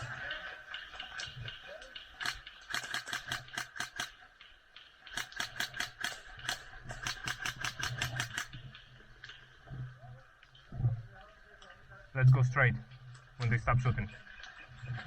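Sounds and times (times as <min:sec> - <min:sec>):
airsoft guns firing: 0:02.2 - 0:04.2, 0:05.1 - 0:08.5.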